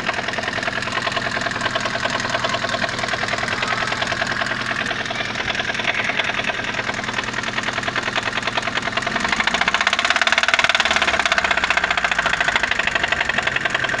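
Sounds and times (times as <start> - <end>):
car engine running: 0.0 - 14.0
fast knocking inside engine: 0.0 - 14.0.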